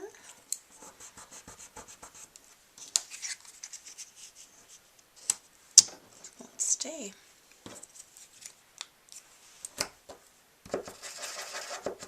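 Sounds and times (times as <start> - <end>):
glue pen scratching on paper: 0.7 - 2.3, 10.7 - 12.0.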